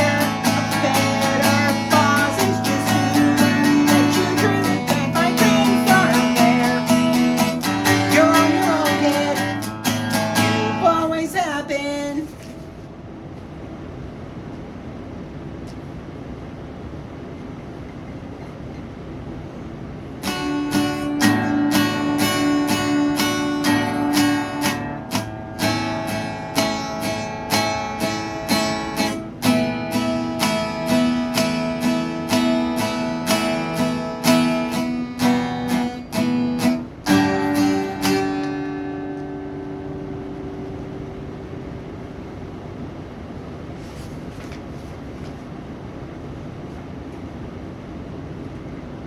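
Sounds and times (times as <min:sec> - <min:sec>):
acoustic guitar strumming: 0:00.0 - 0:12.3, 0:20.2 - 0:42.2
low steady hiss: 0:18.7 - 0:49.0.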